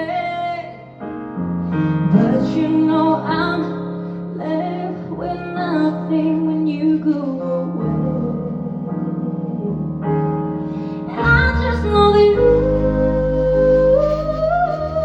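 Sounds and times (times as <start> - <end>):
keyboard and bass: 0.0 - 15.0
woman singing with vibrato: 2.1 - 3.8, 4.4 - 9.9, 11.1 - 15.0.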